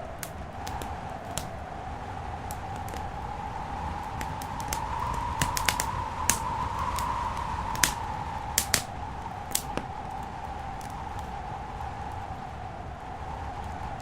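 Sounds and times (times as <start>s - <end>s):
wood fire crackling: 0.0s - 14.0s
sharp pops and snaps: 0.2s - 1.6s, 2.4s - 3.1s, 4.0s - 10.0s.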